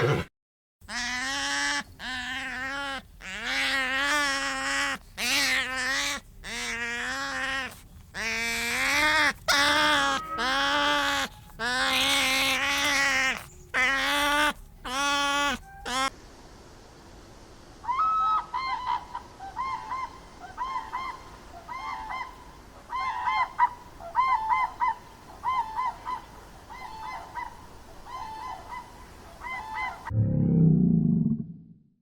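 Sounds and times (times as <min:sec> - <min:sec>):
bird honking: 0:00.9 - 0:16.1
loud low rumbling: 0:30.1 - 0:31.9.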